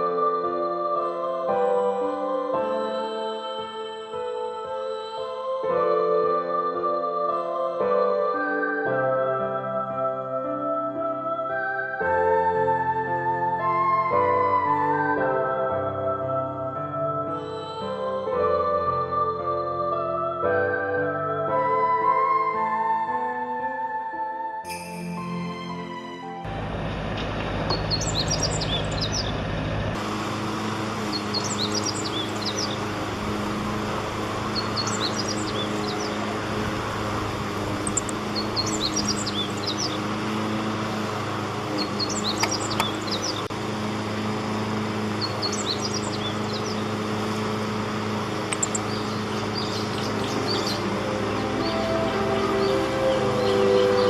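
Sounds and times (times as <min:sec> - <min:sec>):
low mechanical hum: 0:26.5 - 0:54.0
songbird singing: 0:27.5 - 0:29.6, 0:30.2 - 0:54.0.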